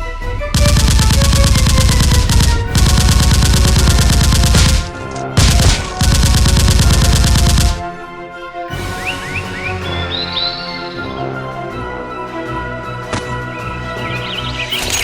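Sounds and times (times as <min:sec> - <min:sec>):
background music: 0:00.0 - 0:15.0
rapid automatic gunfire: 0:00.6 - 0:08.0.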